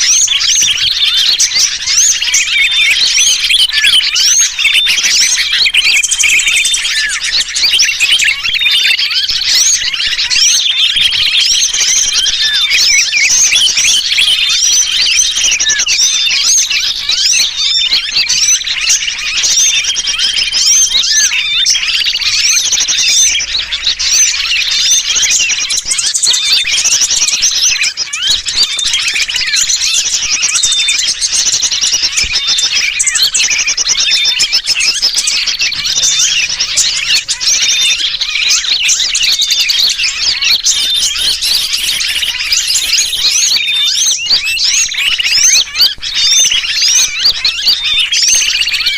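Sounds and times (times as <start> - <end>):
bulbul distress calls: 0.0 - 48.9
small birds chirping: 0.0 - 48.9.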